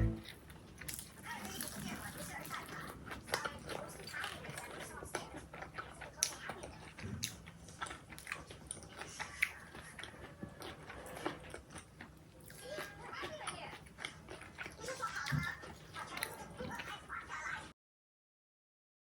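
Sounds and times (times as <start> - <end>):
crunchy food being chewed: 0.1 - 17.6.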